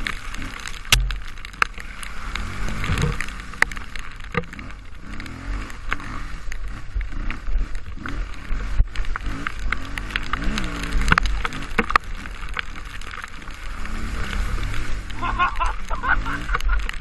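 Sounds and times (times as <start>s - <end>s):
sharp knocks and clatter: 0.7s - 1.8s, 2.8s - 4.7s
dirt bike engine revving: 1.8s - 12.8s, 13.4s - 16.8s.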